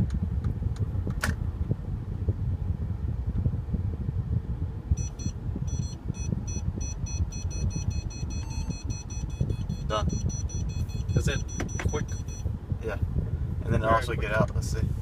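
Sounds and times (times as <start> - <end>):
low rumble of car reversing: 0.0 - 13.8
parking sensor warning beeps: 5.0 - 12.5.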